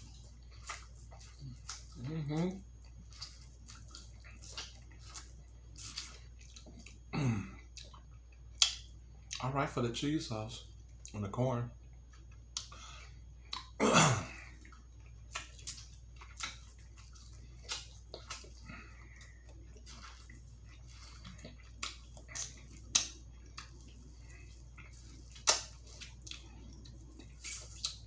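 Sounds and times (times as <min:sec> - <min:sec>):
wet mouth clicks and smacks: 0:07.8 - 0:09.4, 0:12.1 - 0:12.8, 0:13.5 - 0:13.8, 0:14.6 - 0:18.6, 0:21.1 - 0:24.0, 0:24.6 - 0:28.0.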